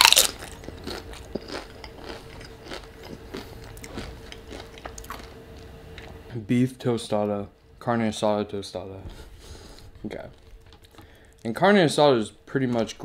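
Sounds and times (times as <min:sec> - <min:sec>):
crunchy chip bite: 0:00.0 - 0:05.3
chewing with small crunches: 0:00.0 - 0:06.3.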